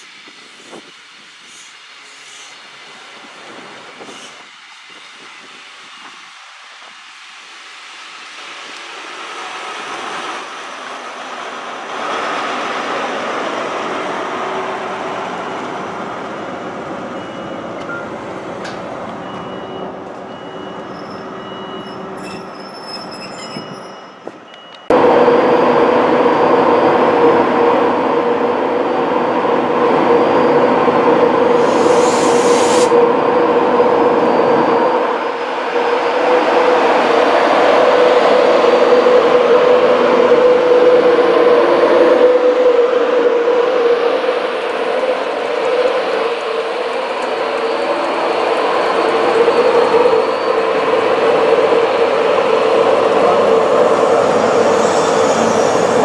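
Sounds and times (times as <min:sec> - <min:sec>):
diesel train passing: 0:00.0 - 0:56.0
train humming: 0:00.0 - 0:56.0
brief hiss: 0:31.6 - 0:32.9.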